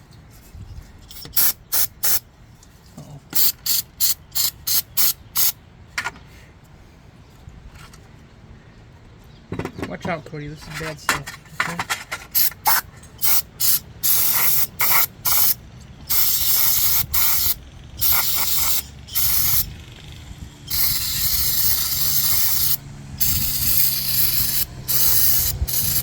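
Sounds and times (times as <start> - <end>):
aerosol spray can hissing: 1.1 - 2.2, 3.4 - 5.5, 12.4 - 19.7, 20.7 - 26.0.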